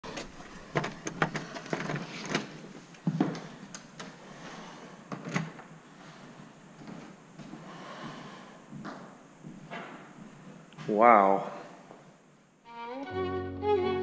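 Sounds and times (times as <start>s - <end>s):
footsteps on bare floor: 1.8s - 3.7s, 5.8s - 11.0s.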